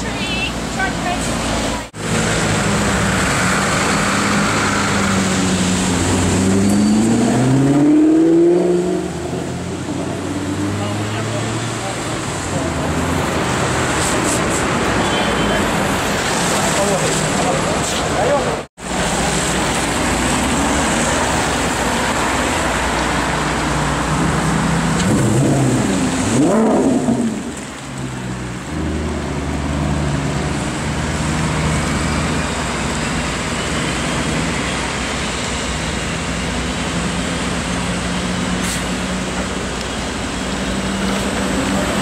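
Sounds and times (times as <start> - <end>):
car engine revving: 1.8 - 14.0, 19.2 - 34.6
traffic hiss on wet road: 10.8 - 42.0.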